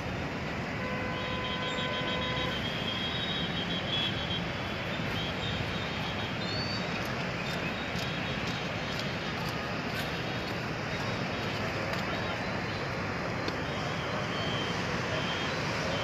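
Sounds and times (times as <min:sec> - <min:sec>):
vehicles on flooded street: 0:00.0 - 0:16.0
car horn: 0:00.7 - 0:04.5.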